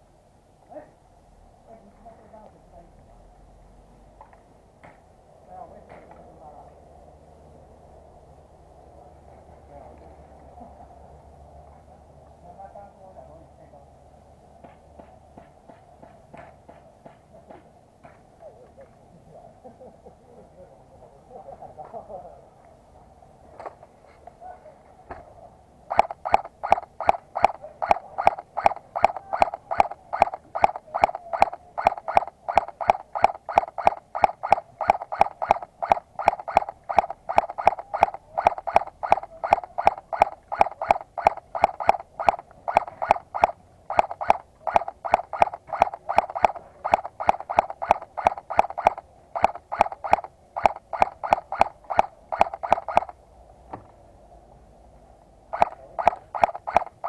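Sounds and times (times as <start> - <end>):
airsoft gun shots: 25.9 - 53.1.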